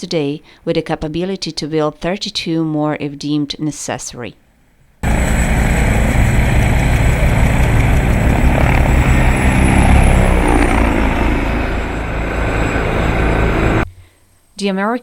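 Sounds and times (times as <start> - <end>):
helicopter rotor blades beating: 5.0 - 13.9
turbine engines running: 5.0 - 13.9.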